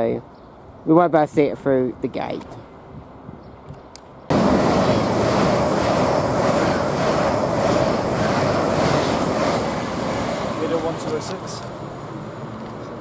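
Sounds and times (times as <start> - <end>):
steady hum: 4.3 - 11.0
electric train passing at speed: 4.3 - 13.0.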